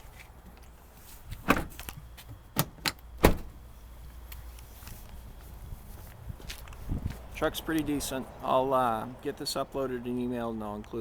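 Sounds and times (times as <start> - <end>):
sharp knocks and clicks in truck cab: 1.3 - 3.6.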